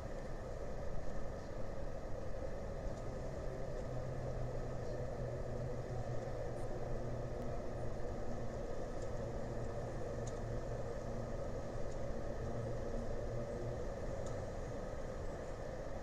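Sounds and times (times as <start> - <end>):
faint ticks: 2.9 - 3.1, 8.9 - 10.8, 11.8 - 12.6, 14.1 - 14.5.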